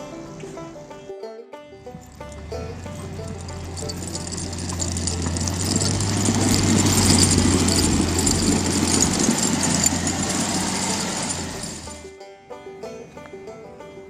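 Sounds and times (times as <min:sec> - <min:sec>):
engine running with hiss: 0:00.0 - 0:01.0, 0:01.9 - 0:12.1.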